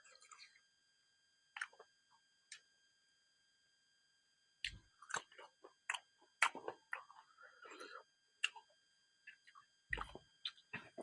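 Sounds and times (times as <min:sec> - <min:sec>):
person chewing with clicks: 0:01.6 - 0:01.9, 0:04.6 - 0:11.0.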